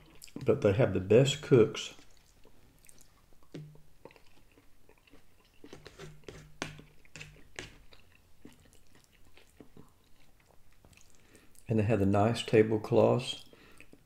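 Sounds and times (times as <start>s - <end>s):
person chewing: 0.0s - 0.5s, 1.9s - 11.7s, 13.4s - 14.0s
wet mouth clicks and smacks: 2.1s - 11.7s.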